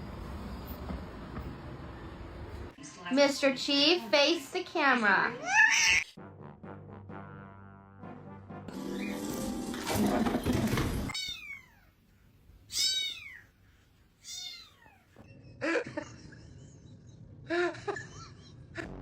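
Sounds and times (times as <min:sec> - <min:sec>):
cat meowing: 0:05.4 - 0:06.1, 0:11.1 - 0:11.9, 0:12.7 - 0:13.5, 0:14.2 - 0:15.0.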